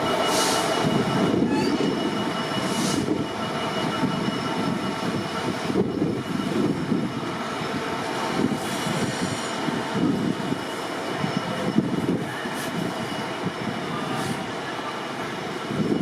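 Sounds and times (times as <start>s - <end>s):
train rail rumble: 0.0s - 16.0s.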